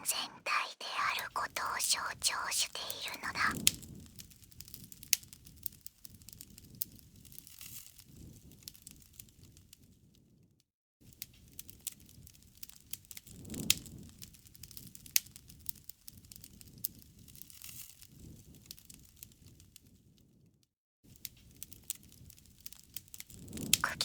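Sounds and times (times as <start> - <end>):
bonfire crackling and popping: 11.2 - 19.8, 21.1 - 23.8.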